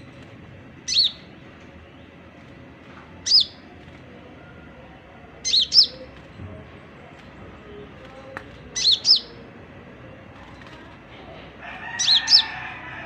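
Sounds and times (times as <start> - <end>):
songbird whistled chirps: 0.9 - 1.3, 3.2 - 3.6, 5.4 - 6.1, 8.8 - 9.4.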